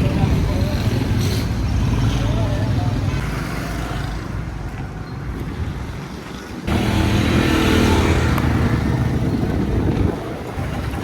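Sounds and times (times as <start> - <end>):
steady engine hum: 6.6 - 11.0
engine low rumble: 6.7 - 11.0.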